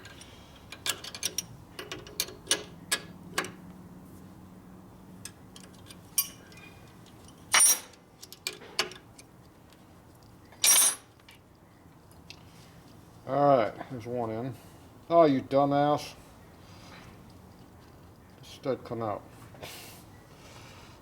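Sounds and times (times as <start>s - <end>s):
hand tools clicking on metal: 0.0s - 3.5s.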